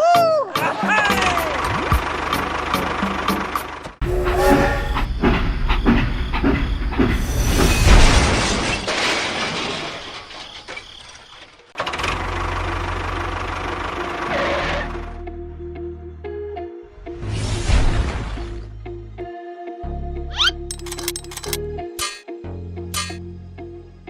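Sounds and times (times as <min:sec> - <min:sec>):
machine low rumble: 0:01.5 - 0:07.7
machine clattering knocks: 0:03.0 - 0:08.5.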